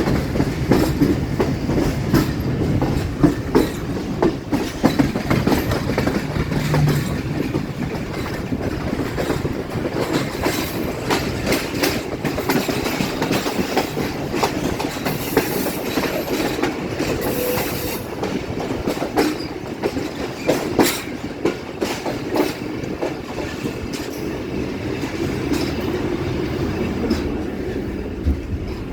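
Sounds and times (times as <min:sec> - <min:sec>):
train wheels clattering: 0:00.0 - 0:28.9
wheels squealing: 0:04.7 - 0:08.5.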